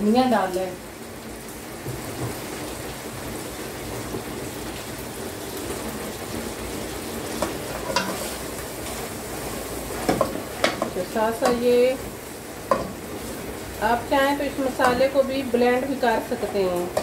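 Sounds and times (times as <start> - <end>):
masala sizzling in a pot: 0.0 - 17.0
stirring in a pot: 7.4 - 11.9.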